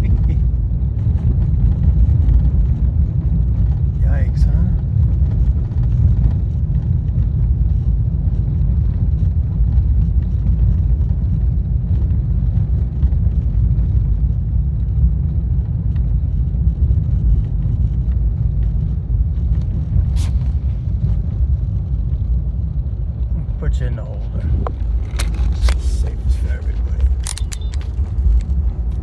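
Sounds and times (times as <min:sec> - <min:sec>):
car road and engine rumble: 0:00.0 - 0:29.0
sharp click: 0:27.0 - 0:28.0.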